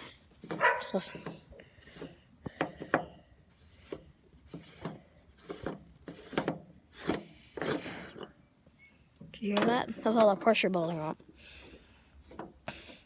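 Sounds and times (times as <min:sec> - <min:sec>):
pressure hissing from tank: 0:06.7 - 0:08.2.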